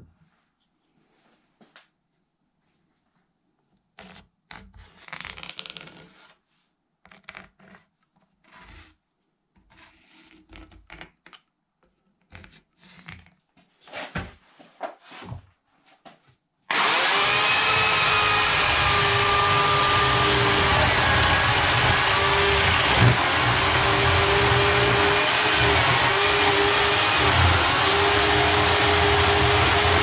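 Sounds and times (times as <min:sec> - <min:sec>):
electric chainsaw cutting log: 0:16.7 - 0:30.0.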